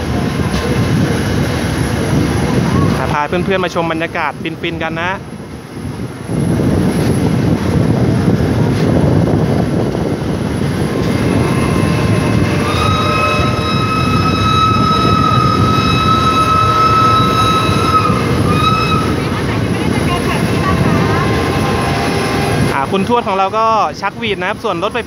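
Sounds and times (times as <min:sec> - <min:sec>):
train rumble and wind rush: 0:00.0 - 0:25.0
high train whistle: 0:11.1 - 0:19.4, 0:20.4 - 0:22.6.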